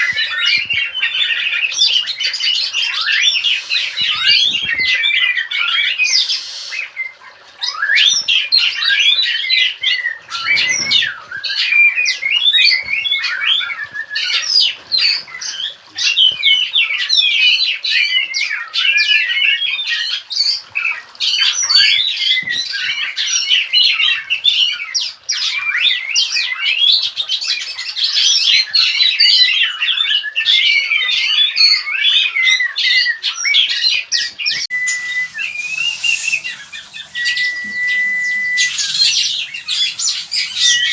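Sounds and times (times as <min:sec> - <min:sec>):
birds chirping and whistling: 0:00.0 - 0:17.6, 0:34.2 - 0:40.9.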